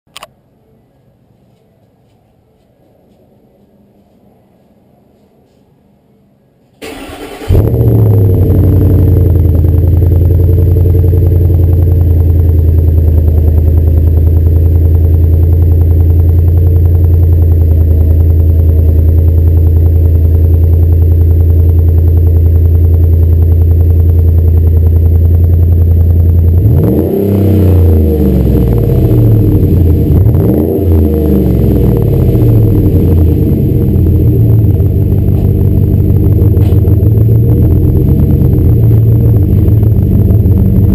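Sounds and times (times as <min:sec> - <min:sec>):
engine starting and idling: 0:06.8 - 0:27.9
engine revving: 0:06.8 - 0:40.9.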